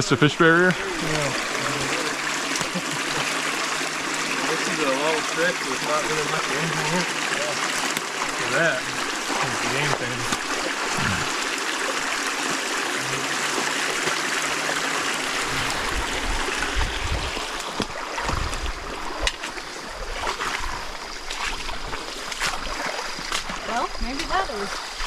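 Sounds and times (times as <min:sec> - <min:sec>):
stream flowing over rocks: 0:00.0 - 0:25.0
low rumbling: 0:08.4 - 0:11.4, 0:15.4 - 0:17.4.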